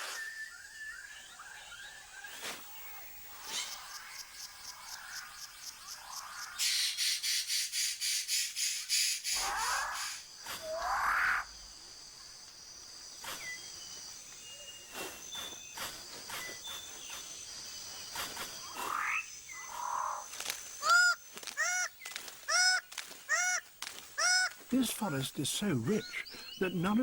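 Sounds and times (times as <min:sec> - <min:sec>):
sweeping bird calls: 0:00.0 - 0:12.2, 0:12.8 - 0:27.0
high insect drone: 0:00.0 - 0:27.0
loud harsh bird calls: 0:06.4 - 0:11.6, 0:18.2 - 0:27.0.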